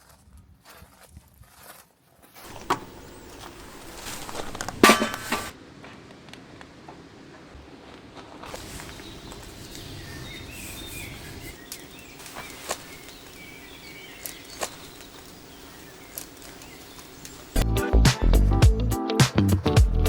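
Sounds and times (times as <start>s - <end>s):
rain hiss: 2.4s - 5.6s, 8.5s - 17.6s
faint bird chirps: 8.7s - 17.6s.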